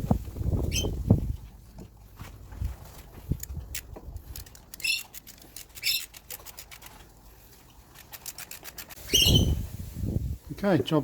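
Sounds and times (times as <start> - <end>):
ratchet wrench clicking: 3.7 - 6.9, 8.0 - 9.0.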